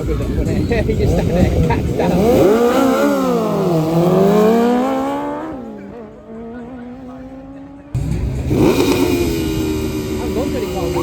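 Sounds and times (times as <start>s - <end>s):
racing engine accelerating: 1.1s - 11.0s.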